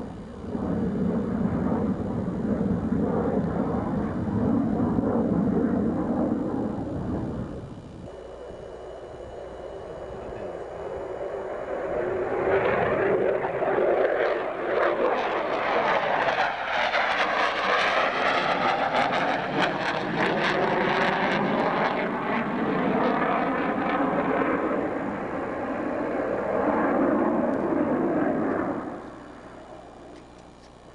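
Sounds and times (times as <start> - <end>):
fighter jet flying past: 0.0 - 7.8, 8.5 - 30.2.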